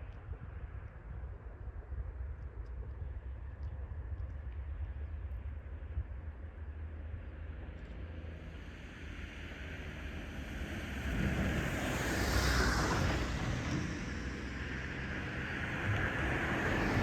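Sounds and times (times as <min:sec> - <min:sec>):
low wind rumble: 0:00.0 - 0:17.0
passing vehicle rushing hiss: 0:08.9 - 0:17.0.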